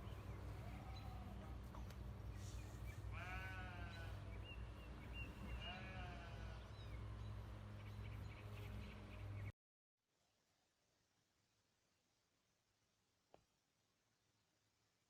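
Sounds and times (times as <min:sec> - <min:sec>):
steady low hum: 0:00.0 - 0:09.5
animal bleating call: 0:00.4 - 0:01.4, 0:03.0 - 0:04.4, 0:05.5 - 0:06.9.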